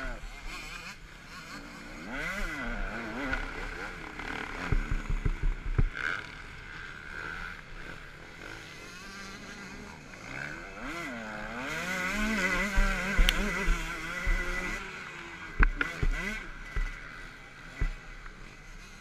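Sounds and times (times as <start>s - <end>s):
motocross motorcycle engine: 0.0s - 19.0s
wind and track noise hiss: 0.0s - 19.0s
bike knocking over bumps: 4.6s - 6.0s, 12.6s - 14.8s, 15.6s - 17.0s, 17.8s - 18.1s.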